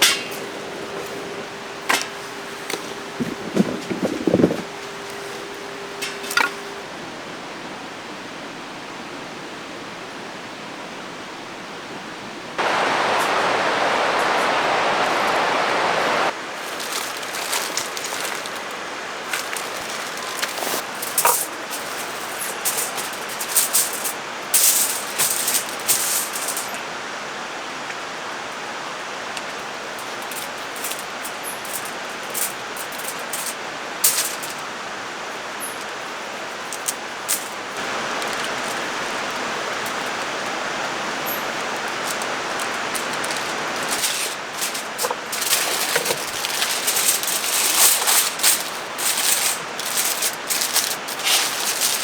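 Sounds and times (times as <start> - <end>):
stream rushing: 12.6 - 52.0
sharp crackles and clicks: 41.5 - 52.0.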